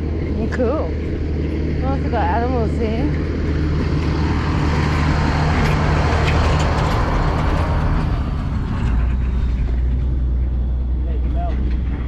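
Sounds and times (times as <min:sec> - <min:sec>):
car engine hum: 0:00.0 - 0:12.0
road noise: 0:00.0 - 0:12.0.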